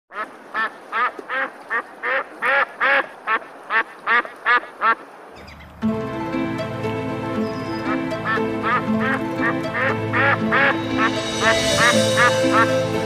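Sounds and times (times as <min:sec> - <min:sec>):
duck quacking: 0:00.1 - 0:05.0, 0:08.3 - 0:10.8
background music: 0:05.8 - 0:13.0.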